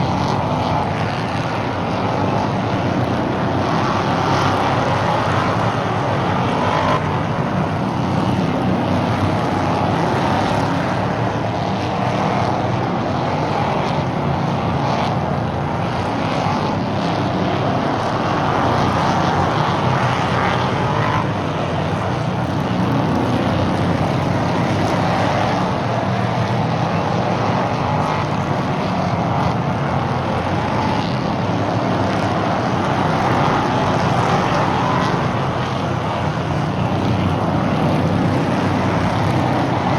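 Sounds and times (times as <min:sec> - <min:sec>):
race car engines: 0:00.0 - 0:39.9.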